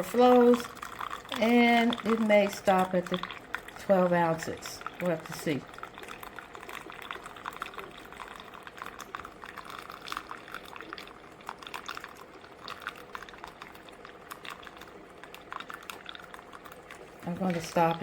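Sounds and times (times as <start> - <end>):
coffee maker hum: 0.0 - 18.0
coffee streaming and gurgling: 0.0 - 18.0.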